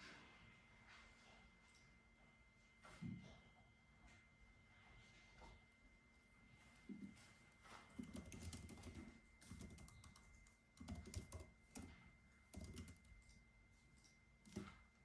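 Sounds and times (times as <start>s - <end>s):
computer keyboard typing: 7.9s - 13.4s, 14.0s - 15.0s.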